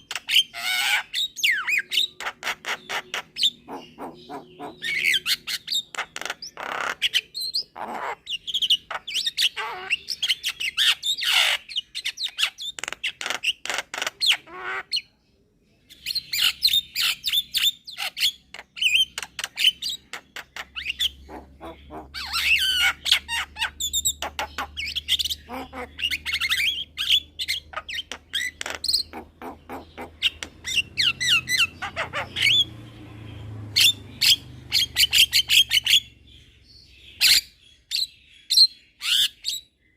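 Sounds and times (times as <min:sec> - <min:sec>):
myna chattering and whistling: 0:16.0 - 0:32.7.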